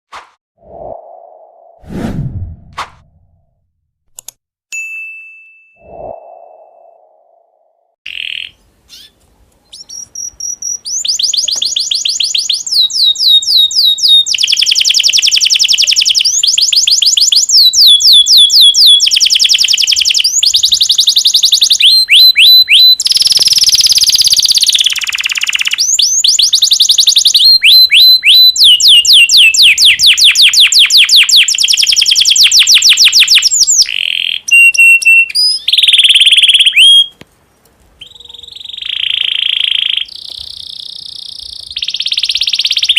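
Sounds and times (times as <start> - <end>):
canary singing trills: 8.1 - 37.1, 38.0 - 42.9.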